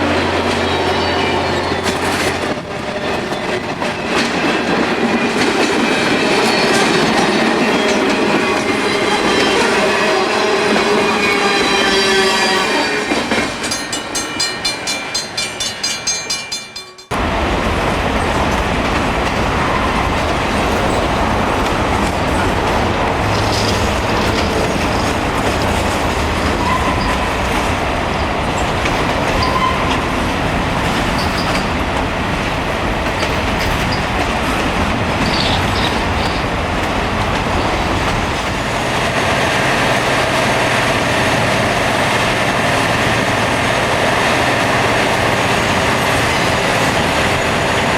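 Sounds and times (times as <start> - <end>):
rail grinding noise: 0.0 - 47.9.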